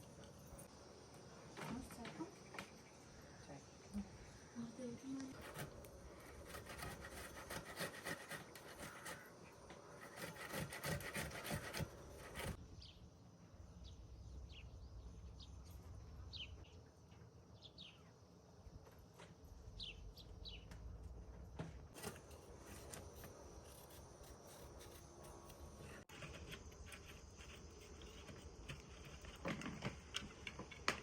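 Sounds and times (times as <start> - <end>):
outdoor ambience: 0.0 - 31.0
rough scraping with clicks: 5.2 - 12.6, 21.9 - 31.0.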